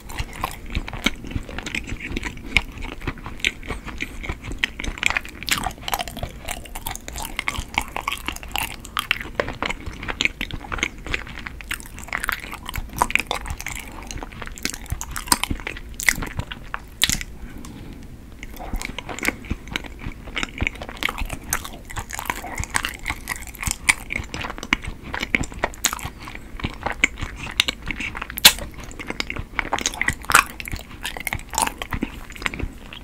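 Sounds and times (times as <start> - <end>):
chewing mouth clicks: 18.4 - 33.0.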